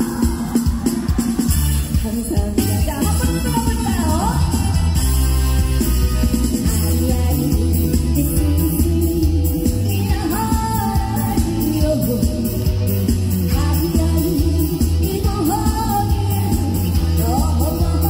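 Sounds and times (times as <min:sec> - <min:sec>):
band playing: 0:00.0 - 0:18.0
bass beat: 0:00.0 - 0:18.0
person singing: 0:06.6 - 0:18.0.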